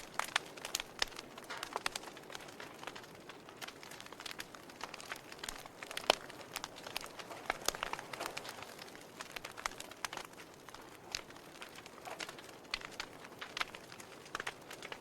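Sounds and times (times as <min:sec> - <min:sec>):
soft hiss of flames: 0:00.0 - 0:15.0
wood fire crackling and popping: 0:00.0 - 0:15.0.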